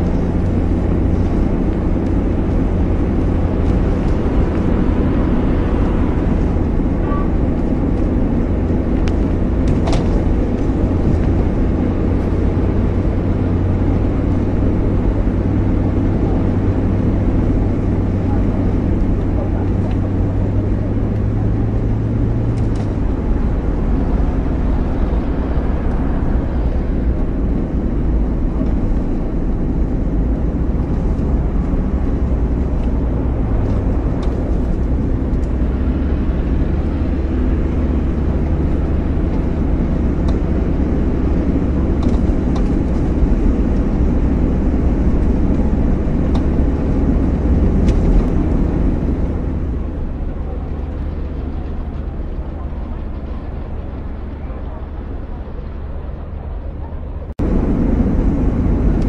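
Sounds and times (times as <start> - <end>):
car engine low drone: 0.0 - 59.0.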